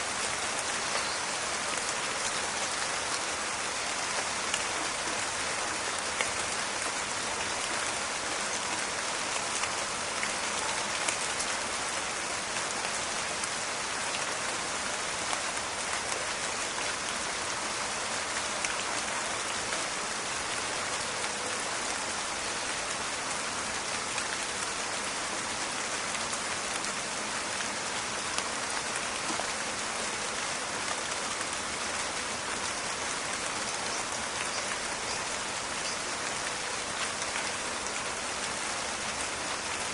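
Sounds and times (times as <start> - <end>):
steady rain in a forest: 0.0 - 39.9.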